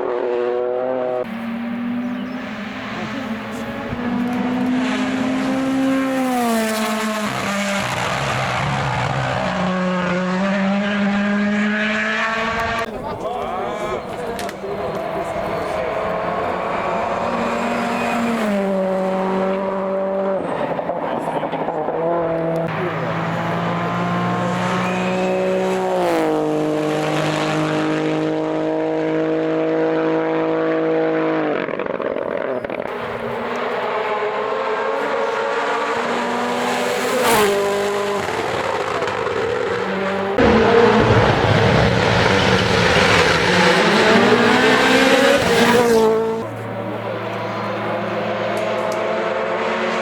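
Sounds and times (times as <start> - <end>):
rally car engines running hard: 0.0 - 50.0.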